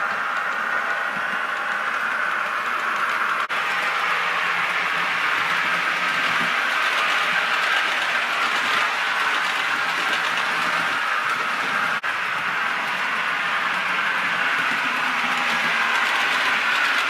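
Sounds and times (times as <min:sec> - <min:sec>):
model train motor whirring: 0:00.0 - 0:17.0
wheels running on rails: 0:00.0 - 0:17.0.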